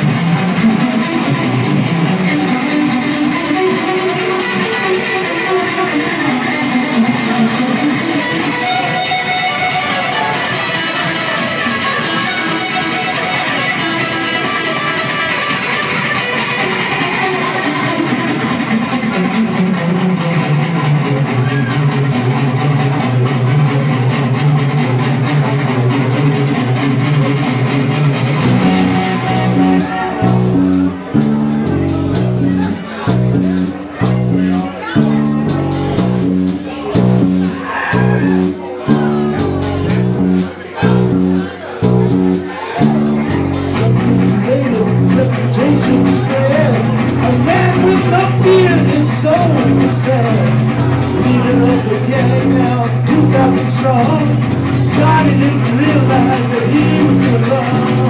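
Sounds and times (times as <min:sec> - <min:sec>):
bass guitar: 0:00.0 - 0:58.0
electric guitar: 0:00.0 - 0:58.0
live rock band playing: 0:00.0 - 0:58.0
drums and cymbal hits: 0:28.4 - 0:58.0.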